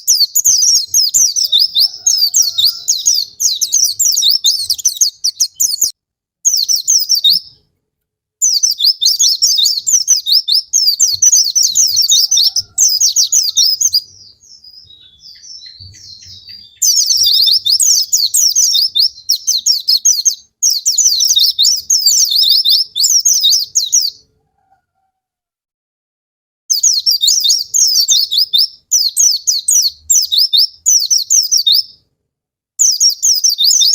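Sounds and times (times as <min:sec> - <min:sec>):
white-eye birdsong: 0:00.0 - 0:07.6, 0:08.4 - 0:24.3
soft scattered bird calls: 0:00.0 - 0:07.8, 0:08.4 - 0:25.2, 0:26.7 - 0:32.1.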